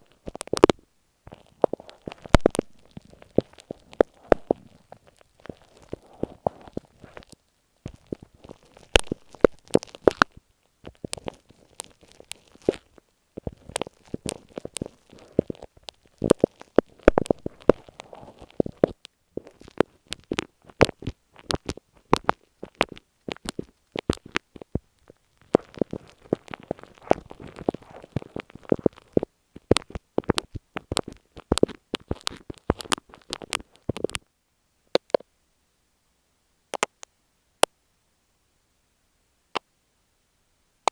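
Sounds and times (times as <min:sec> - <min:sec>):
soft rubbing: 0:00.0 - 0:34.1
sticky glue crackles and clicks: 0:00.0 - 0:34.2, 0:34.9 - 0:35.2, 0:36.8 - 0:37.1.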